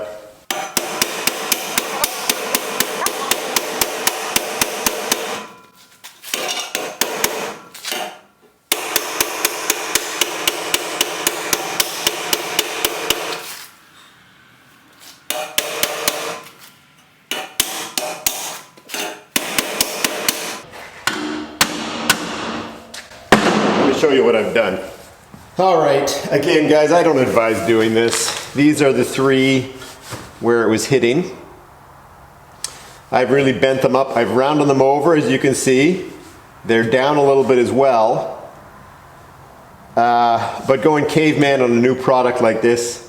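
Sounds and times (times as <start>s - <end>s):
hammer beating on metal: 0.5s - 5.7s, 6.4s - 13.4s, 15.3s - 16.5s, 17.3s - 24.1s.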